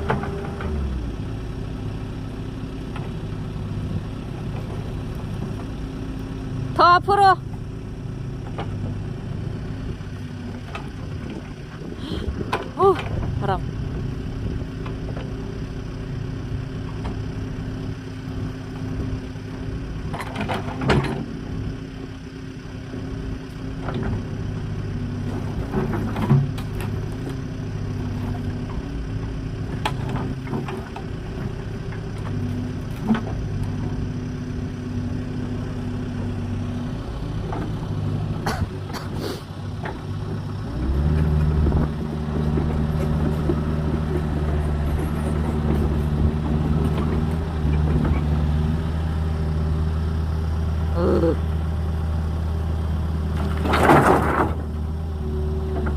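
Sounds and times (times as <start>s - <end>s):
excavator diesel engine: 0.0s - 55.9s.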